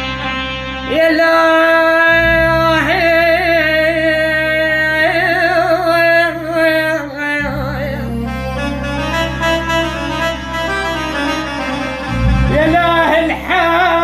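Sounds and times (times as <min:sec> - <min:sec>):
low musical accompaniment: 0:00.0 - 0:14.0
person singing a lament: 0:00.9 - 0:08.8, 0:12.5 - 0:14.0.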